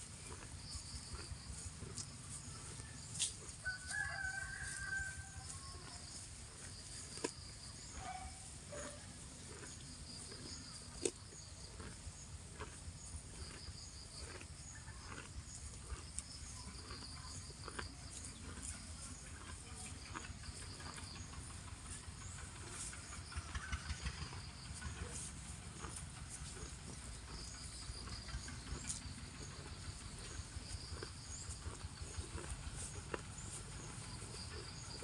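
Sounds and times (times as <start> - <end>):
cow tearing grass: 0.0 - 35.0
insects chirping: 0.0 - 35.0.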